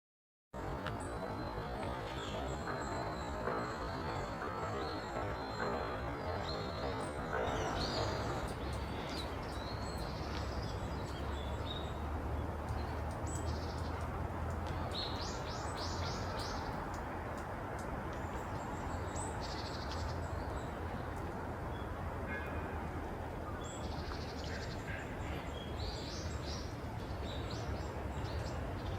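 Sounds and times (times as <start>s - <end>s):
birds chirping: 0.6s - 22.7s.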